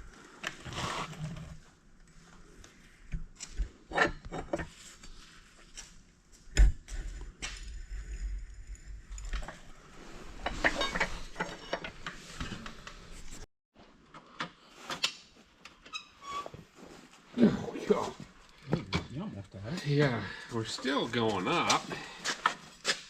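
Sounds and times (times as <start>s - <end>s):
metal tools clinking: 10.5s - 11.9s.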